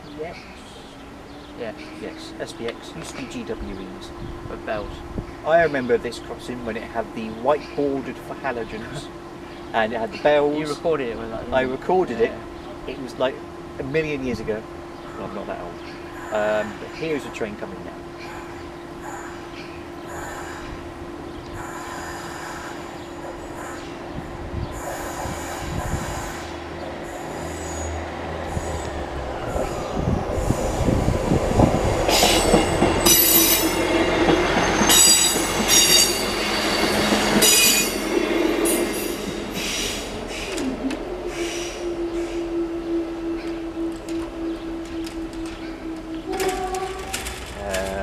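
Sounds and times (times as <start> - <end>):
train passing: 0.0 - 48.0
train wheels squealing on rails: 18.2 - 20.8, 21.5 - 24.0, 24.7 - 48.0
crossing alarm steady tone: 32.2 - 39.4, 40.5 - 47.8.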